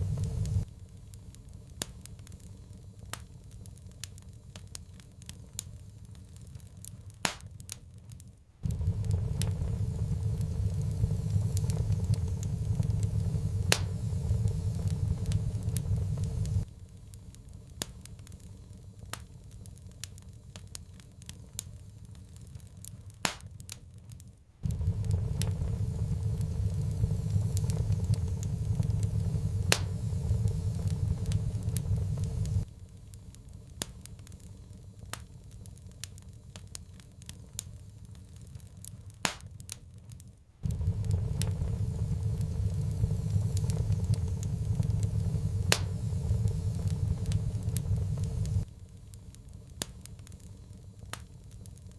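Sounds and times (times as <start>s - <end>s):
low rumble: 0.0s - 0.7s, 8.6s - 16.7s, 24.6s - 32.8s, 40.6s - 49.0s
wood fire crackling: 0.0s - 51.9s.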